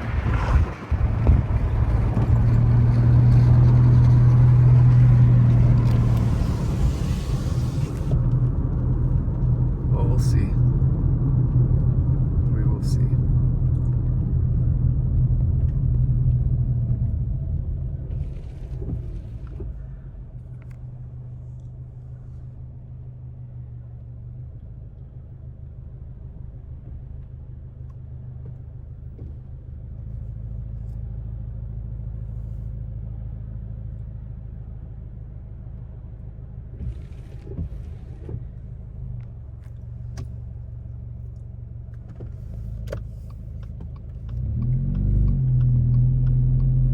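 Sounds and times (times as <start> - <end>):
road and engine rumble inside car: 0.0 - 46.9.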